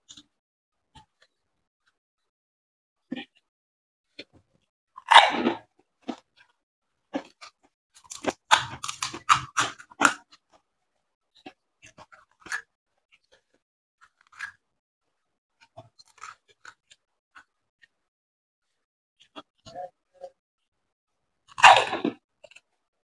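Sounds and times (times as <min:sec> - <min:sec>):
crisp shell crunching: 0:08.0 - 0:10.2.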